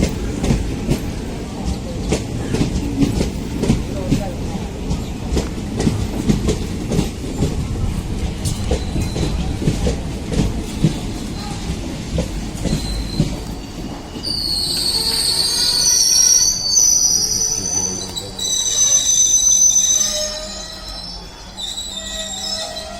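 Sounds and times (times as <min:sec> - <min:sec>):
wheels clicking over rail joints: 0:00.0 - 0:14.2
train wheels rumbling: 0:00.0 - 0:22.9
wheel squeal: 0:12.6 - 0:22.9.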